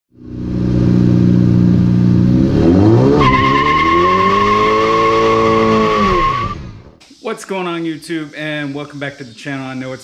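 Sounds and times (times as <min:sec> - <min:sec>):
car engine revving: 0:00.2 - 0:06.9
high tyre squeal: 0:03.0 - 0:06.8.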